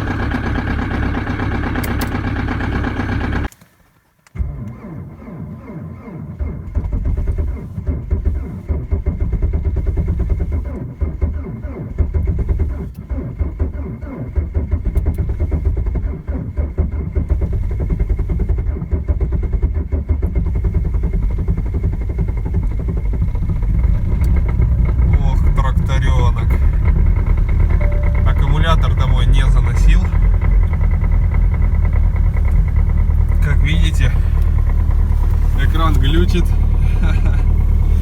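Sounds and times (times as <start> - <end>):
diesel engine running rough: 0.0 - 3.5, 4.4 - 38.0.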